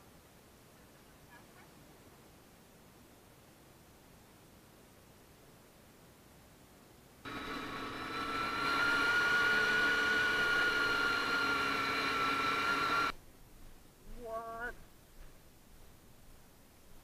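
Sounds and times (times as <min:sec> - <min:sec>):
motorcycle engine at high revs: 0:07.3 - 0:13.1.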